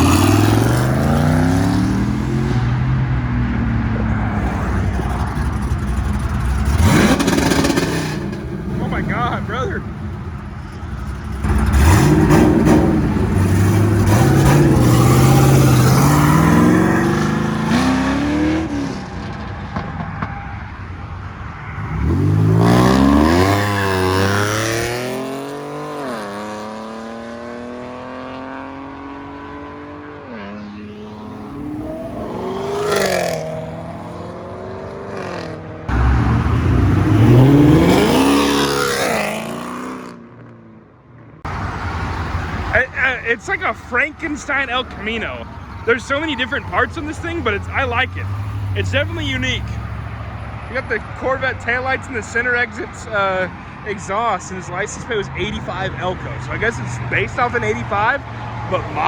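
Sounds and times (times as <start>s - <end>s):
car engines revving and accelerating: 0.0s - 59.0s
gear shifts: 41.5s - 52.3s.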